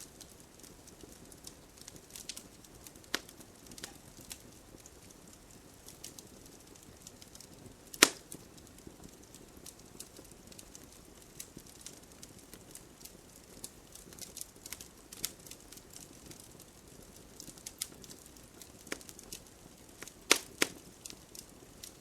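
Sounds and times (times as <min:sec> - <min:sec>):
campfire crackling: 0:00.0 - 0:22.0
loud pop of fire: 0:07.9 - 0:08.4, 0:20.0 - 0:20.8.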